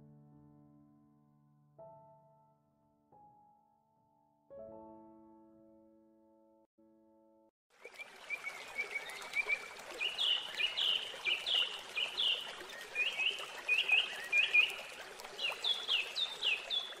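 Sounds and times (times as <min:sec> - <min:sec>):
small birds singing: 0:08.3 - 0:17.0.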